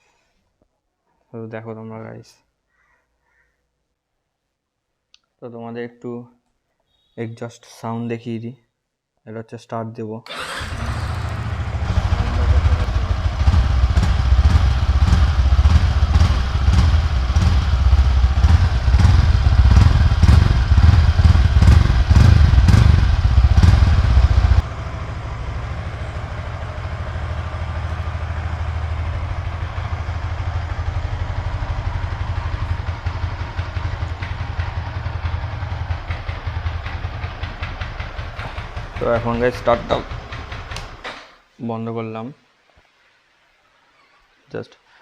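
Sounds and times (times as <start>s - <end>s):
motorcycle engine running: 10.3s - 41.0s.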